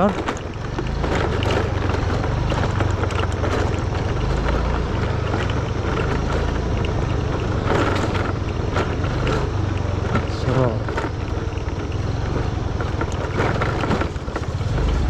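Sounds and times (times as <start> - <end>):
road noise: 0.0 - 15.0
vehicle engine rumbling: 0.0 - 15.0.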